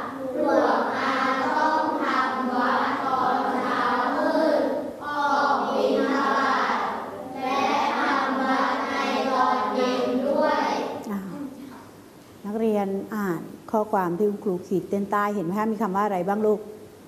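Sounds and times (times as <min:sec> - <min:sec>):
children reading aloud in unison: 0:00.0 - 0:12.0.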